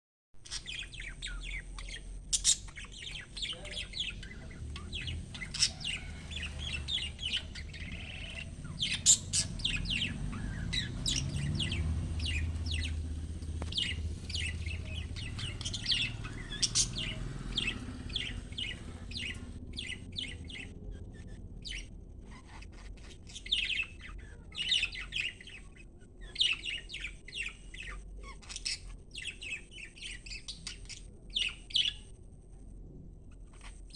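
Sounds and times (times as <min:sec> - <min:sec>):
budgerigars chirping: 0:00.4 - 0:20.7
low rumble: 0:00.8 - 0:22.4.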